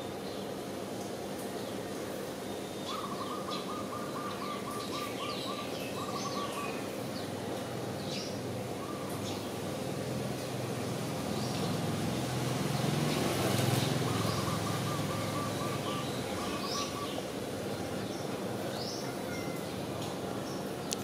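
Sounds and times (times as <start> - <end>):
small birds chirping: 2.6 - 7.4, 12.7 - 21.0.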